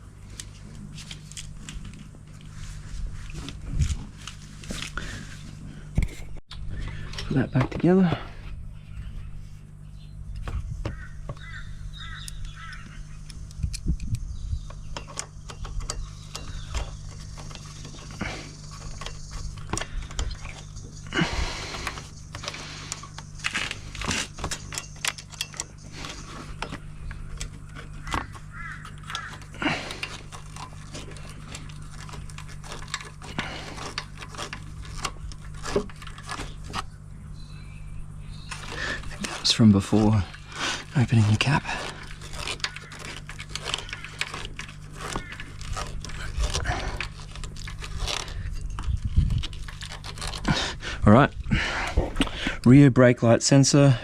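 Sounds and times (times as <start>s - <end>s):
low hum: 0.0s - 52.8s
tools and metal parts rattling: 12.6s - 36.8s, 38.5s - 50.5s.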